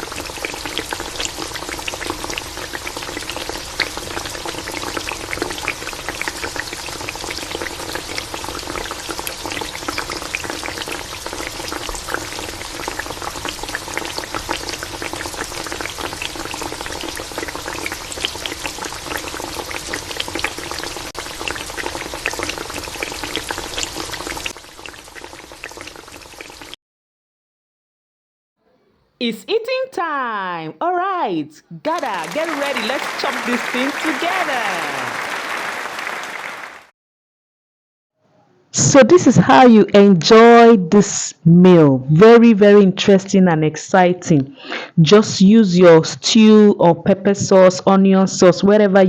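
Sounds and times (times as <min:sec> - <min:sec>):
food deep-frying in oil: 0:00.0 - 0:26.8.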